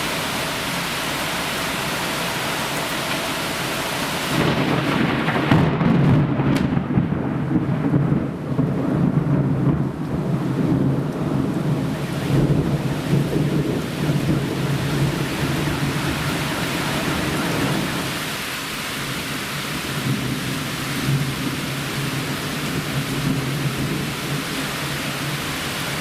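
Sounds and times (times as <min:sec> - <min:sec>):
thunder rumbling: 0:00.0 - 0:18.4
heavy rain falling: 0:00.0 - 0:26.0.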